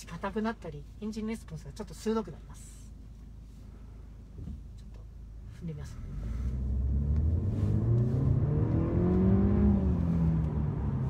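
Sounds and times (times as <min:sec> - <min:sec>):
car engine accelerating hard: 0:06.0 - 0:11.0.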